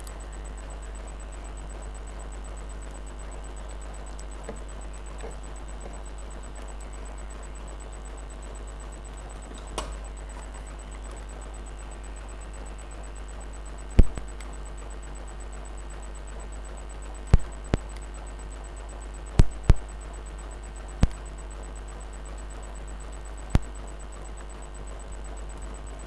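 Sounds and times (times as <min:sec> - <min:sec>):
steady low hum: 0:00.0 - 0:26.0
tools clicking on circuit board: 0:09.2 - 0:11.3, 0:14.0 - 0:14.6, 0:19.4 - 0:19.9, 0:21.0 - 0:21.3.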